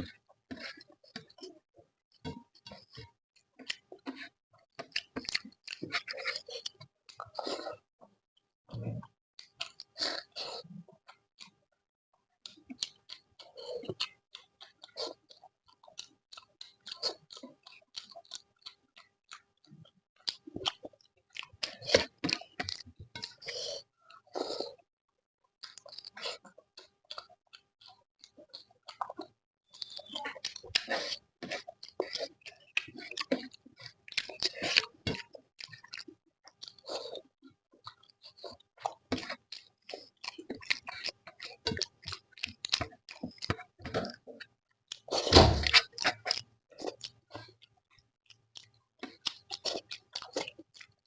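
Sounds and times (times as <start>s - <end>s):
mouth chewing soft food: 0.0s - 51.0s
wet chewing mouth smacks: 25.6s - 51.0s.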